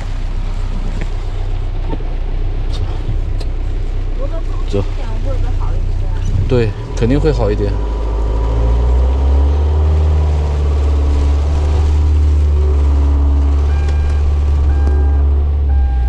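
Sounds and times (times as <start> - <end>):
motorhome engine running: 0.0 - 16.0
short electronic beep: 13.7 - 16.0.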